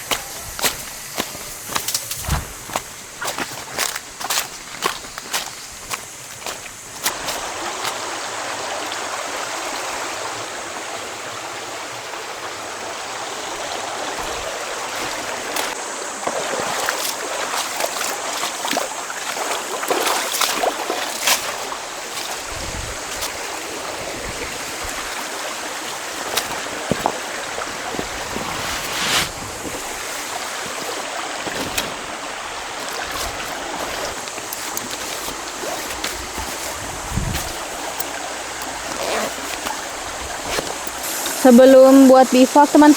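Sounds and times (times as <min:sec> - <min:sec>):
river water flowing: 0:00.0 - 0:42.9.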